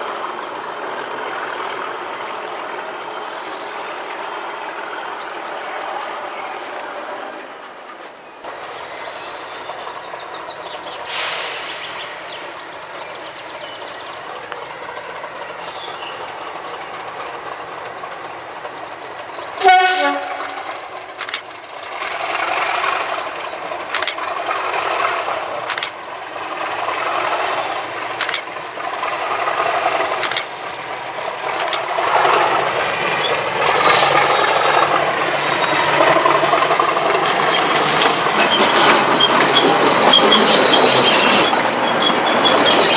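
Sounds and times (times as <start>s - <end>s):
diesel locomotive engine running: 0.0s - 42.9s
wheels clicking over rail joints: 7.6s - 42.9s
high wheel squeal: 8.4s - 21.4s, 22.8s - 28.4s, 29.1s - 42.9s
train horn note: 19.6s - 21.0s.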